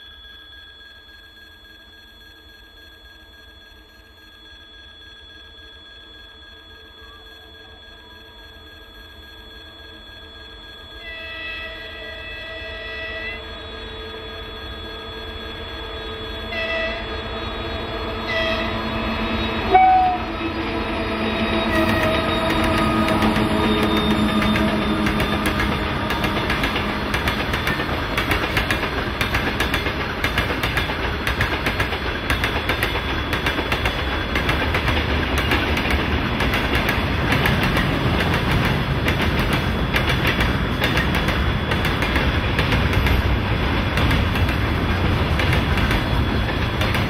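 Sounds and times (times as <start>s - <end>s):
train horn toots: 11.0s - 14.7s, 15.8s - 29.2s
diesel engine drone: 17.2s - 30.2s
train wheels clattering on rails: 21.5s - 47.0s.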